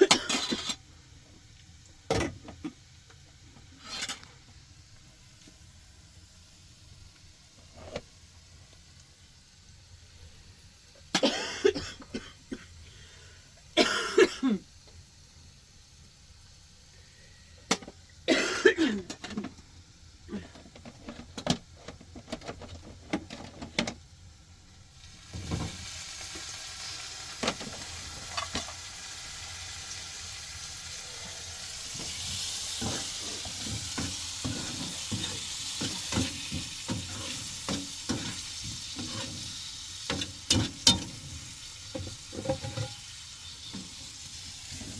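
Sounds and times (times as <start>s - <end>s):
person coughing: 0.0s - 0.7s, 11.2s - 12.7s, 13.8s - 14.6s, 18.3s - 19.2s
food sizzling in a pan: 0.0s - 1.8s, 2.8s - 11.2s, 23.4s - 44.9s.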